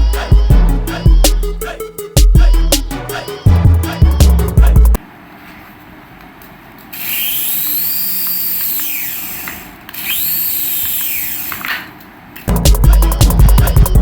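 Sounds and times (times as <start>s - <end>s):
small electric motor whining: 7.0s - 11.8s.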